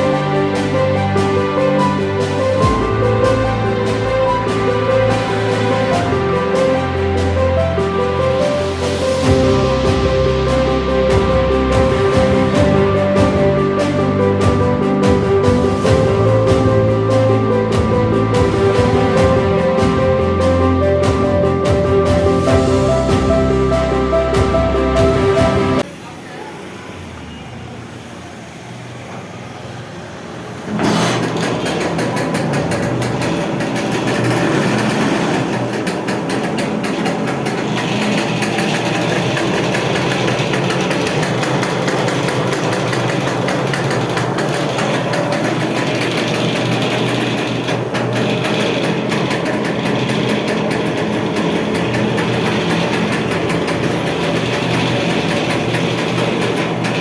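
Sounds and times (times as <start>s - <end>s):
scooter engine idling: 25.8s - 57.0s.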